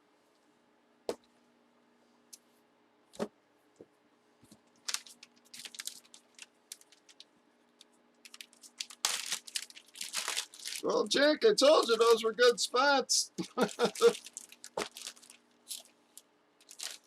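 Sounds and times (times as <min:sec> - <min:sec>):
plastic packaging crinkling: 0:04.7 - 0:11.0, 0:11.6 - 0:12.5, 0:13.6 - 0:17.0.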